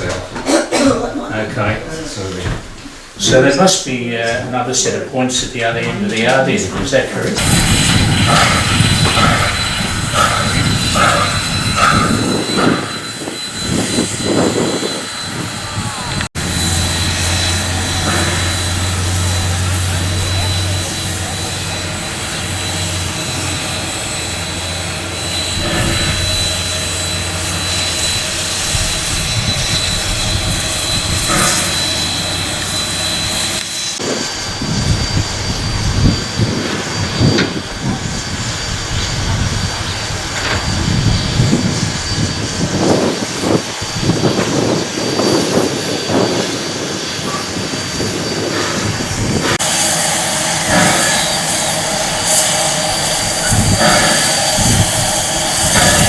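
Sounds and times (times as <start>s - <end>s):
steam locomotive hissing: 0.0s - 56.0s
locomotive knocks and puffs: 49.5s - 56.0s.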